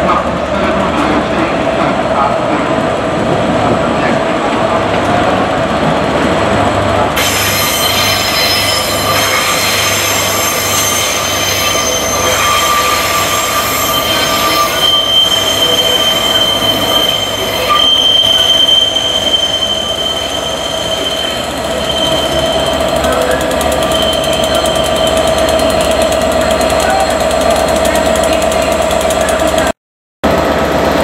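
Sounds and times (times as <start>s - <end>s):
diesel locomotive engine: 0.0s - 31.0s
train wheels squealing on rails: 7.2s - 29.7s.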